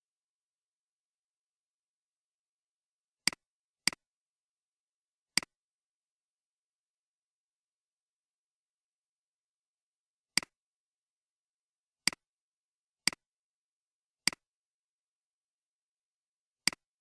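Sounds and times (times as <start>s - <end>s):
computer mouse clicks: 14.2s - 14.4s, 16.7s - 16.9s.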